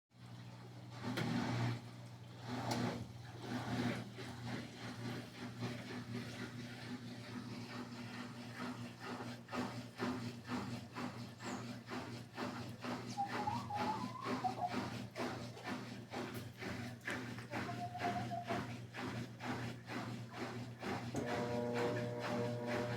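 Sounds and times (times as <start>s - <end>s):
electric motor humming: 21.2s - 22.9s.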